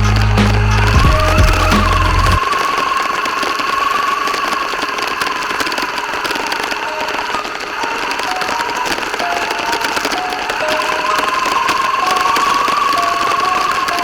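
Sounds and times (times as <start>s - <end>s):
tyres and chassis rattling: 0.0s - 2.4s
toy car drivetrain whine: 0.0s - 14.0s.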